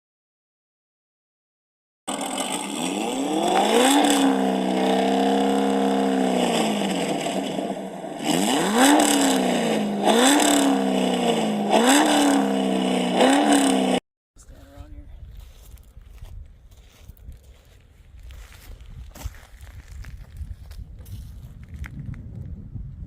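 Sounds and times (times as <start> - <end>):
car engine revving: 2.1 - 14.0.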